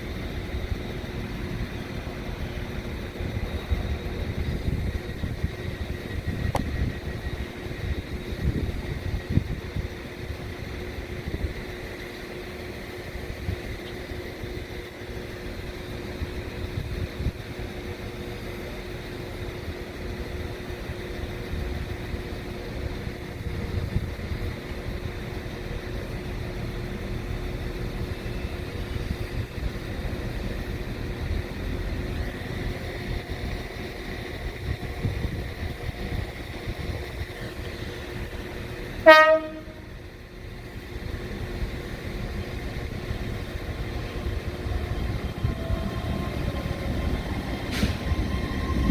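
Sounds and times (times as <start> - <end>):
train rumbling: 0.0 - 48.9
train horn toot: 39.0 - 40.0.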